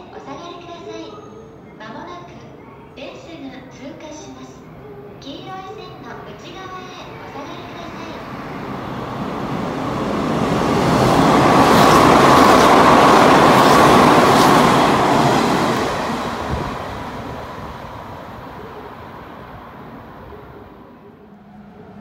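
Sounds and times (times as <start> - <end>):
electric train passing at speed: 4.6 - 22.0.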